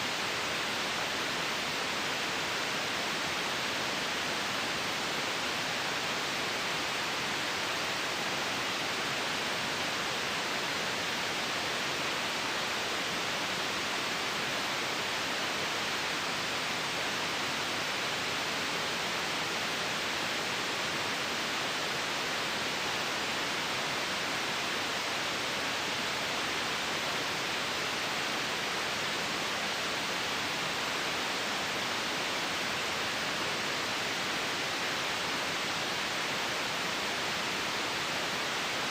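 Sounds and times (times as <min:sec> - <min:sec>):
steady white noise hiss: 0:00.0 - 0:38.9.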